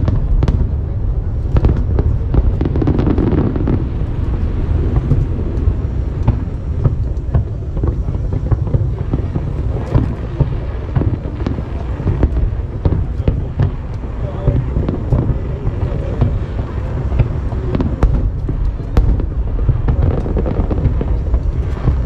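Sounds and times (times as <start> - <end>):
fireworks bangs and crackles: 0.0 - 22.0
steady low rumble: 0.0 - 22.0.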